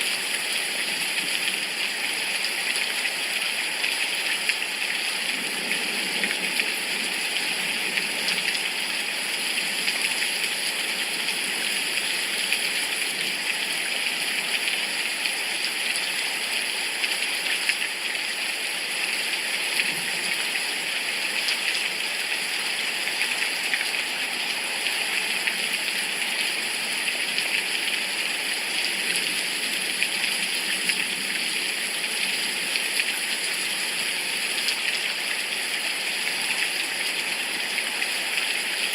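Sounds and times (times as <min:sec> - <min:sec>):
patter of raindrops: 0:00.0 - 0:38.9
steady rain falling: 0:00.0 - 0:38.9.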